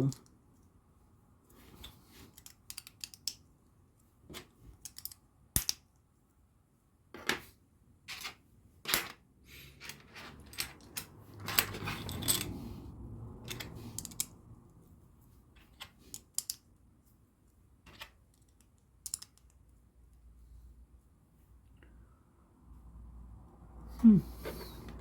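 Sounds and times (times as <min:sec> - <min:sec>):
plastic bricks clicking together: 0:02.3 - 0:03.4, 0:04.8 - 0:05.8, 0:17.9 - 0:19.6.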